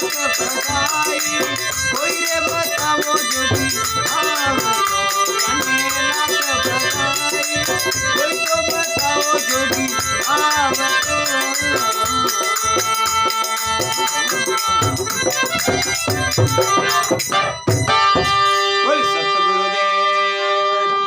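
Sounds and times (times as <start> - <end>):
rattling percussion beat: 0.0 - 19.1
folk melody instrument: 0.0 - 21.0
drums: 6.6 - 18.7.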